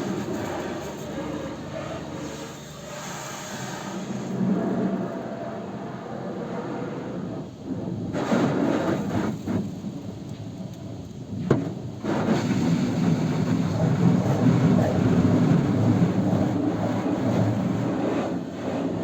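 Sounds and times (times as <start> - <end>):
water spraying onto a car: 0.0 - 5.5.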